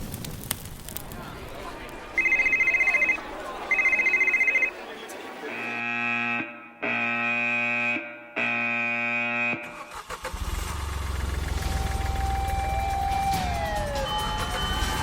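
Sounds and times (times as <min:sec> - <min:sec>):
electronic alarm tones: 0:02.2 - 0:04.7.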